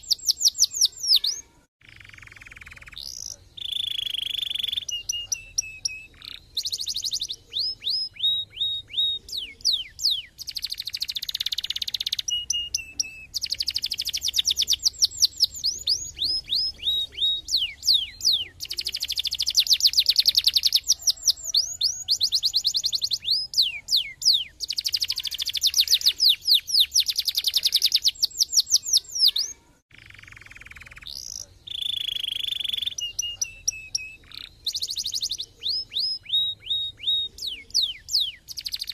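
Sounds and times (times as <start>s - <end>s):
canary singing buzzy trills: 0.0s - 38.9s.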